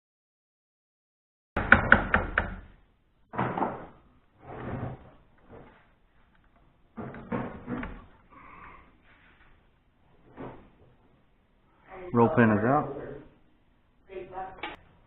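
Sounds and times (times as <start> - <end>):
hammer tapping a punch: 1.6 - 2.6.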